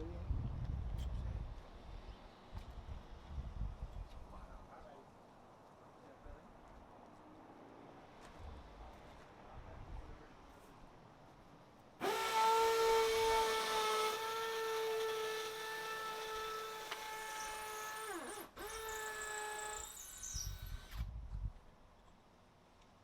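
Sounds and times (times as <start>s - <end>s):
power tool motor whining: 12.0s - 21.1s.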